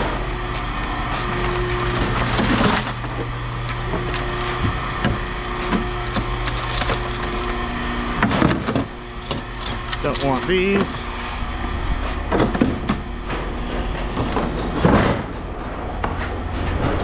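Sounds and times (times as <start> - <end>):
scrap metal clattering: 0.0 - 10.8
low machine hum: 0.0 - 17.0.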